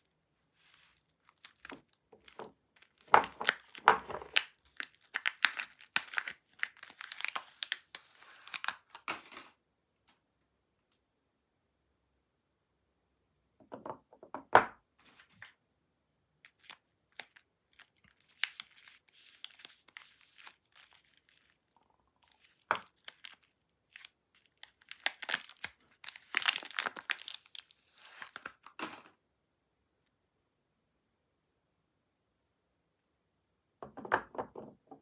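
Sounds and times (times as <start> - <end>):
wrapper crinkling and tearing: 0.6 - 9.5, 16.5 - 29.1.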